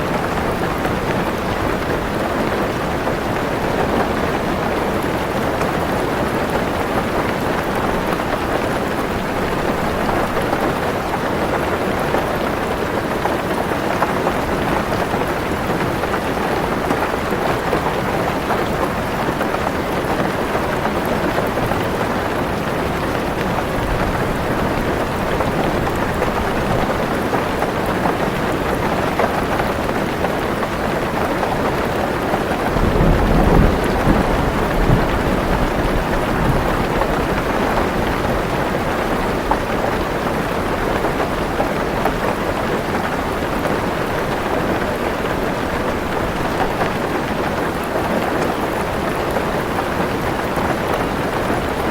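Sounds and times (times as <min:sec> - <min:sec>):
heavy rain on a car roof: 0:00.0 - 0:51.9
low rumble of thunder: 0:32.7 - 0:38.5.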